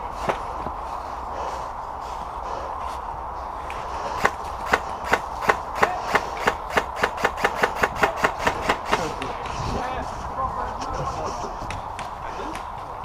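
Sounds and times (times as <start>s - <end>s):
rapid sharp clicks: 4.2s - 9.0s.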